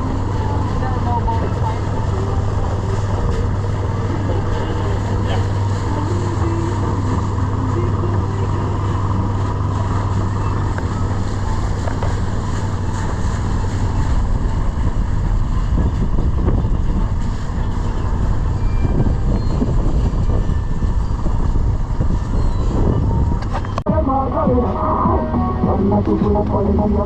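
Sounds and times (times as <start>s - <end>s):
boat engine humming: 0.0s - 27.0s
wind noise on microphone: 0.0s - 27.0s.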